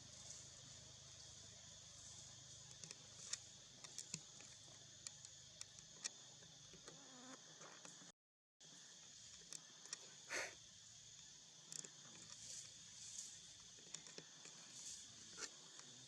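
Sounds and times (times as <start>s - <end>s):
insect chorus drone: 0.0s - 16.0s
small clicks: 2.6s - 8.1s, 13.6s - 16.0s.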